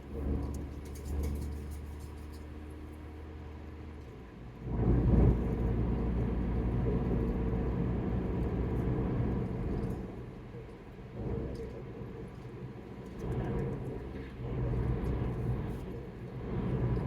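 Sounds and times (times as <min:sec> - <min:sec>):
car rumble from inside cabin: 0:04.0 - 0:17.0.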